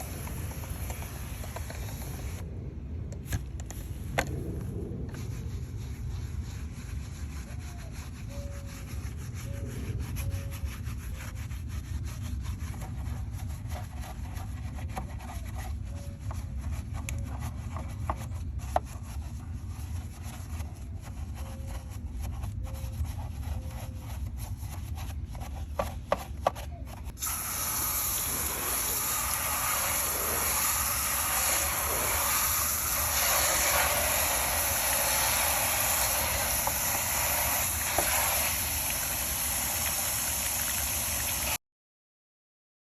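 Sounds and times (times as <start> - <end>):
brush scrubbing a tire: 0.0 - 2.4, 5.1 - 41.3
spray hiss: 27.2 - 41.4.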